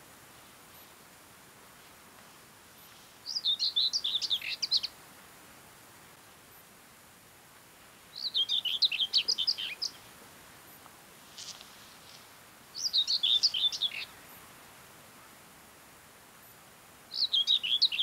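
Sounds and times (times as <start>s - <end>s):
bird warbling song: 3.3s - 4.9s, 8.2s - 10.0s, 12.8s - 14.1s, 17.1s - 18.0s.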